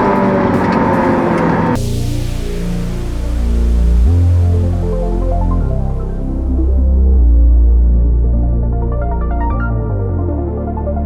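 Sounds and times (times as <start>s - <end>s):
music with low bass notes: 1.7s - 11.0s.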